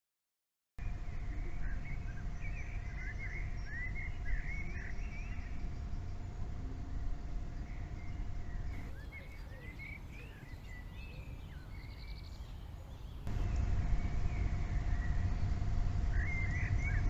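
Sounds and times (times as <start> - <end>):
wind rumble on microphone: 0.8 - 12.4, 13.2 - 17.0
birds chirping: 0.8 - 17.0
faint steady tone: 13.3 - 17.0.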